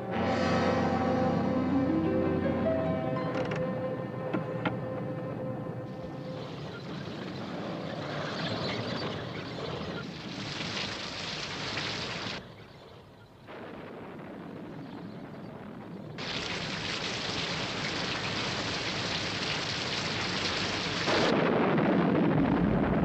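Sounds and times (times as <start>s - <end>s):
rain and storm noise: 5.9s - 23.0s
deep rumble like thunder: 13.3s - 23.0s.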